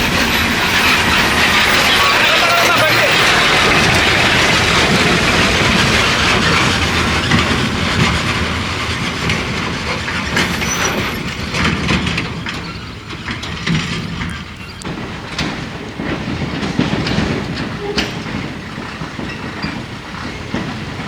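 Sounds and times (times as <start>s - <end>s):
truck body rattling and clanking: 0.0s - 21.0s.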